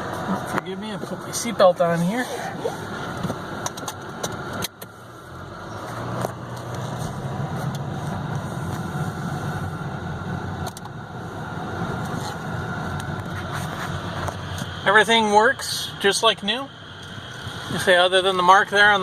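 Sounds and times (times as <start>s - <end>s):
car engine from cabin: 0.0s - 19.0s
sharp clicks inside car: 3.1s - 5.0s.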